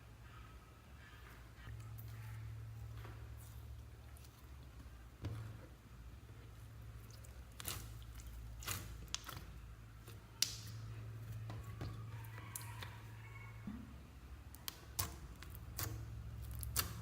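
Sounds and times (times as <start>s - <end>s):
low steady hum: 0.0s - 17.0s
slime squishing with sticky clicks: 6.5s - 13.1s, 14.4s - 17.0s.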